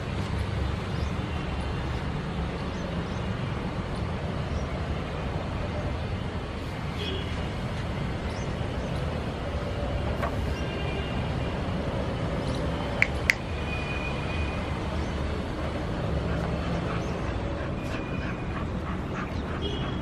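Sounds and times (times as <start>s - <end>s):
low traffic rumble: 0.0s - 20.0s
sharp clacks: 13.0s - 13.5s.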